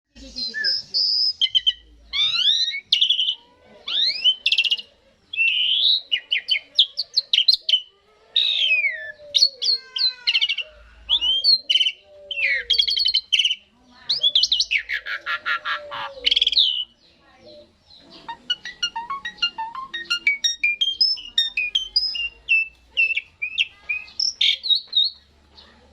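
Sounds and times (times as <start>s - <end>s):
starling singing whistles: 0.2s - 6.6s, 18.2s - 25.2s.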